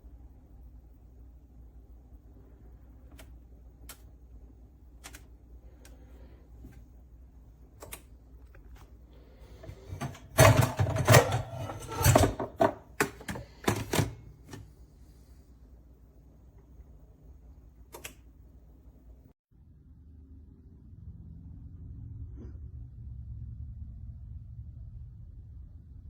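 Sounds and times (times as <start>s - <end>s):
hard objects clattering: 9.6s - 14.2s.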